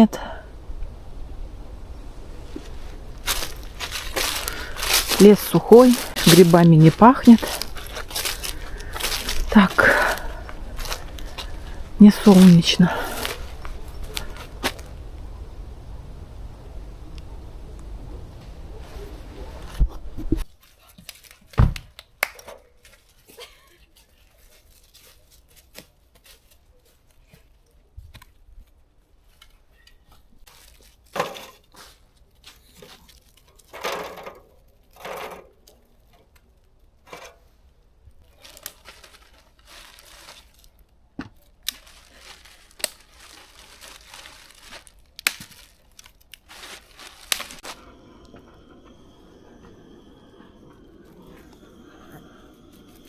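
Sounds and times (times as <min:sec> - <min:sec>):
dry material rustling: 0:00.4 - 0:16.1, 0:38.3 - 0:40.8, 0:41.6 - 0:52.0.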